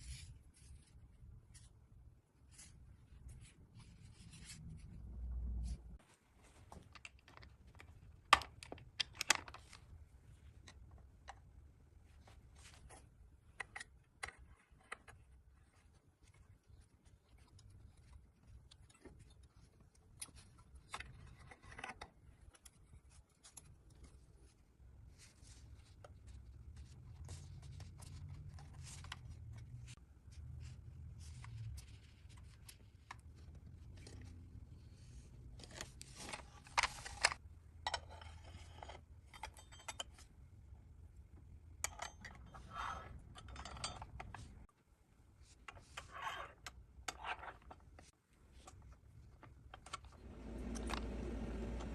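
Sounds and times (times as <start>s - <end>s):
low steady hum: 50.1s - 51.9s.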